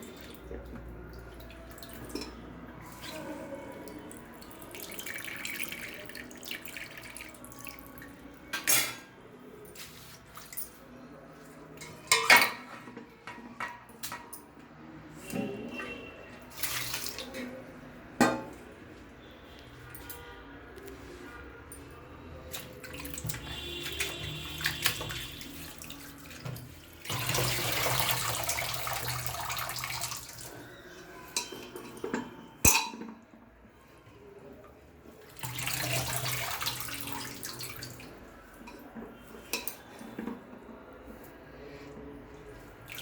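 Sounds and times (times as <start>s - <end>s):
tap water running: 22.6s - 30.6s, 35.3s - 38.2s.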